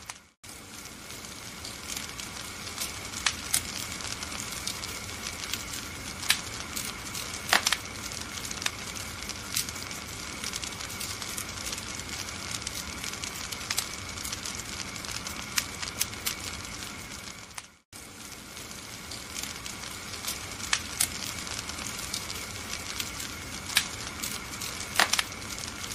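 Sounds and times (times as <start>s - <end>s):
wood fire crackling and popping: 0.0s - 25.9s.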